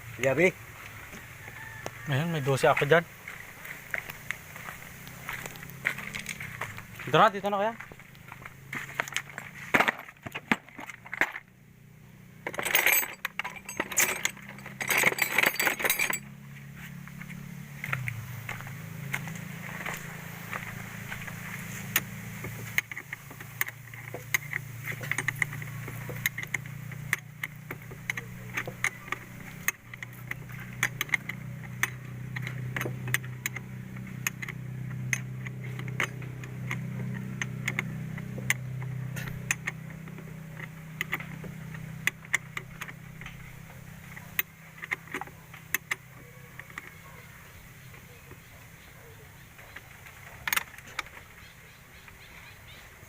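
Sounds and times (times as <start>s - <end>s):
steady low hum: 0.0s - 53.0s
metal tools clinking: 8.8s - 11.5s, 12.4s - 17.0s, 17.9s - 48.6s.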